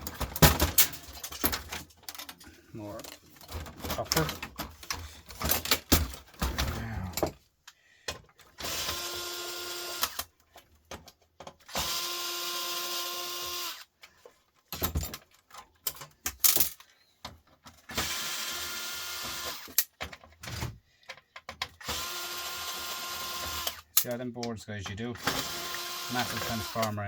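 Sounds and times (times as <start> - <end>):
clicks and knocks of parts handled: 0.0 - 8.6, 10.0 - 11.8, 13.9 - 17.9, 19.4 - 22.0, 23.5 - 25.1
cordless drill running: 8.6 - 10.2, 11.7 - 13.9, 17.9 - 19.8, 21.8 - 23.9, 25.2 - 27.0.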